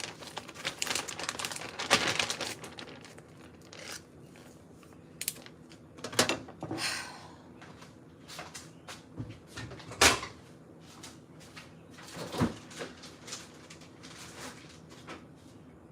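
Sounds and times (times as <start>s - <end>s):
crinkling and rustling: 0.0s - 6.2s, 12.0s - 15.3s.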